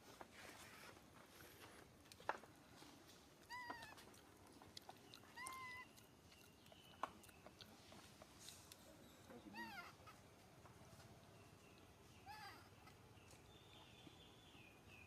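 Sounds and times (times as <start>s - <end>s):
baby monkey crying: 3.5s - 4.0s, 5.3s - 6.0s, 9.5s - 10.2s, 12.2s - 13.0s.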